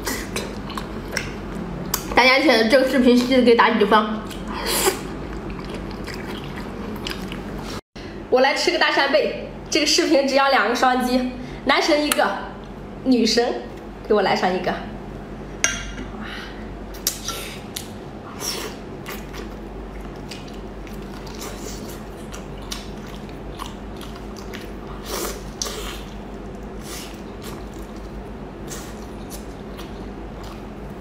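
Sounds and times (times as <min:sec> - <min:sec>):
low steady hum: 0:00.0 - 0:31.0
chewing scallops: 0:04.2 - 0:07.8, 0:18.5 - 0:31.0.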